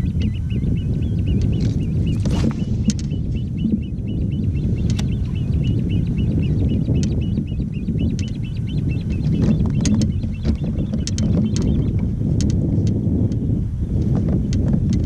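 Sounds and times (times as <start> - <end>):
bird trilling: 0.0 - 12.0
wind on microphone: 0.0 - 15.0.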